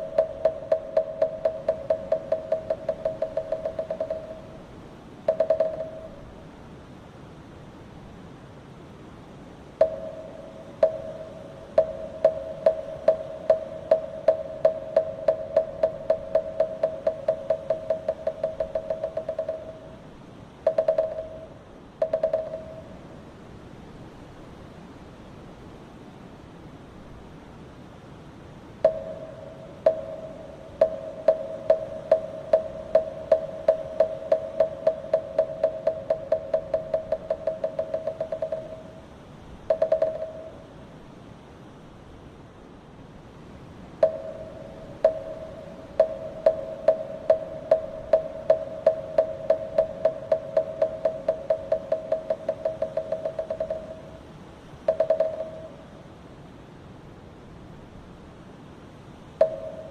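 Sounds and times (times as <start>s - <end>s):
hollow wooden fish knocks: 0.0s - 4.5s, 5.3s - 6.1s, 10.8s - 19.8s, 20.7s - 21.4s, 29.9s - 39.0s, 44.0s - 54.2s, 54.9s - 55.7s
wooden temple block struck: 0.0s - 4.6s, 5.3s - 6.2s, 9.8s - 20.0s, 20.6s - 23.0s, 28.8s - 39.0s, 39.7s - 40.6s, 44.0s - 54.2s, 54.9s - 55.8s, 59.4s - 59.9s
faint steady hiss: 0.0s - 59.9s.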